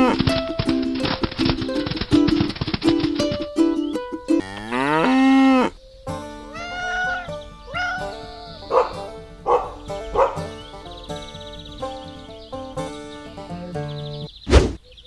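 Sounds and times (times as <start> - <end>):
plucked ukulele music: 0.0 - 5.0, 6.1 - 14.3
cow mooing: 4.4 - 5.8.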